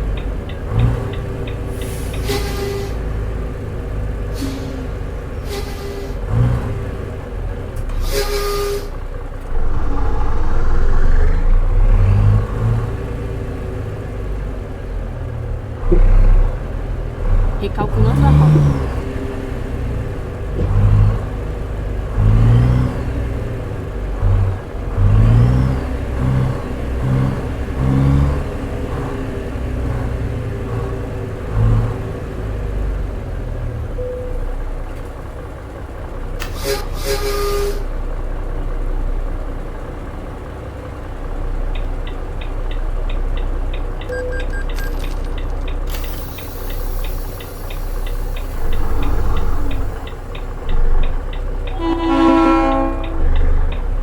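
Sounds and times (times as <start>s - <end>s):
truck engine accelerating: 0.0s - 54.0s
rapid ticking: 41.7s - 51.8s.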